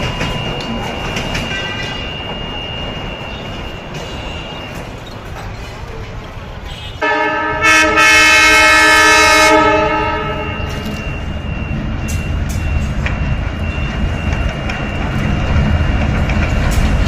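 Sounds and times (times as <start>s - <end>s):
wheels clicking on rails: 0.0s - 7.0s, 10.3s - 17.0s
train rumbling: 0.0s - 17.0s
train horn blast: 6.7s - 10.8s.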